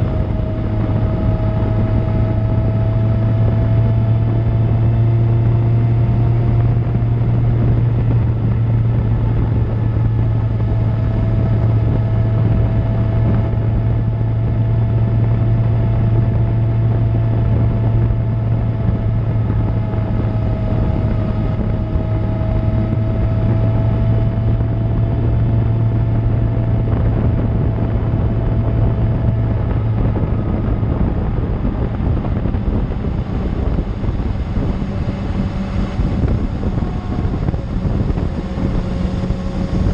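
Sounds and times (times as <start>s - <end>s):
motorcycle engine cruising: 0.0s - 39.9s
wind noise: 0.0s - 39.9s.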